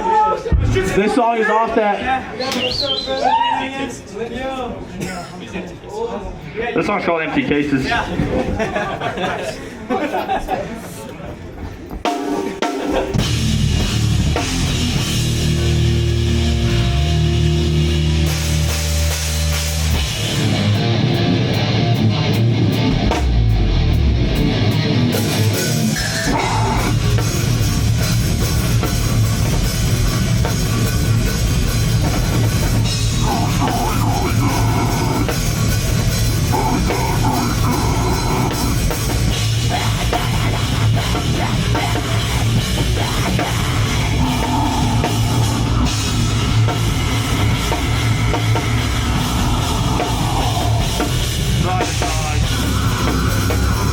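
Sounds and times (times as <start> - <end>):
drum kit: 11.7 - 53.9
distorted electric guitars: 12.3 - 53.9.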